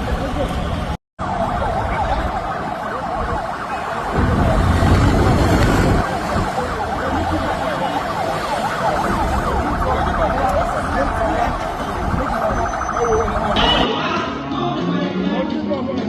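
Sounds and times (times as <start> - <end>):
vehicle siren yelping: 1.2 - 13.9.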